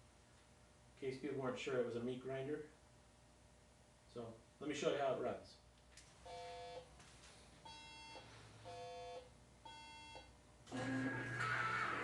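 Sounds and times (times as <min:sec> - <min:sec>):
two-tone electronic alarm beeps: 0:06.3 - 0:06.9, 0:07.6 - 0:10.3.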